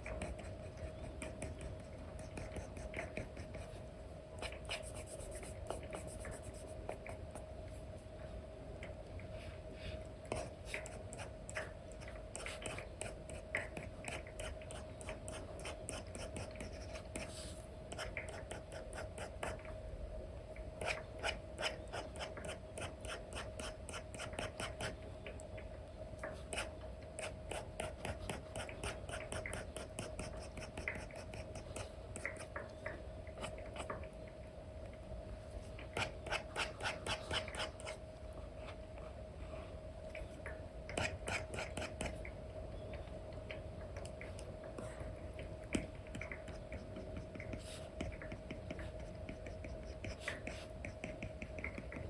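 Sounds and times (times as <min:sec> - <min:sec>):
stylus scratching and tapping on screen: 0:00.0 - 0:03.8, 0:04.4 - 0:07.9, 0:10.3 - 0:19.7, 0:20.8 - 0:25.0, 0:26.2 - 0:34.1, 0:35.7 - 0:38.0, 0:40.9 - 0:42.3, 0:45.7 - 0:52.0
faint steady hum: 0:00.0 - 0:52.0.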